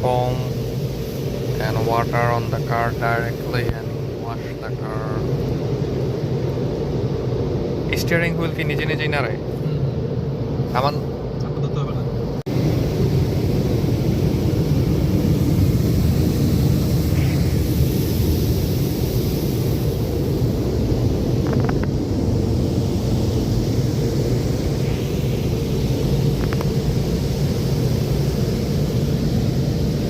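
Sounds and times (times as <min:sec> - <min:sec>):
car wash machinery rushing: 0:00.0 - 0:11.2, 0:12.0 - 0:30.0.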